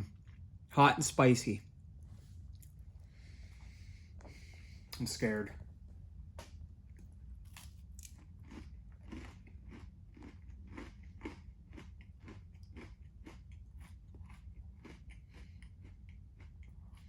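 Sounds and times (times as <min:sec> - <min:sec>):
person chewing granola bar: 0:00.0 - 0:00.6, 0:06.9 - 0:17.0
steady low hum: 0:00.0 - 0:17.0.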